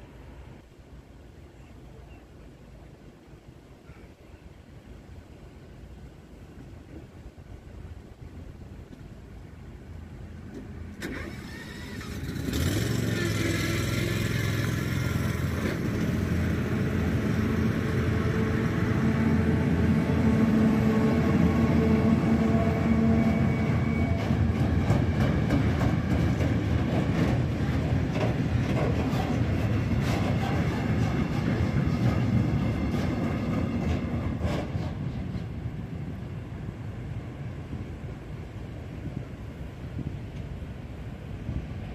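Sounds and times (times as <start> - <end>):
train rumbling past: 0.0 - 41.9
short clicks of train wheels: 28.1 - 35.5.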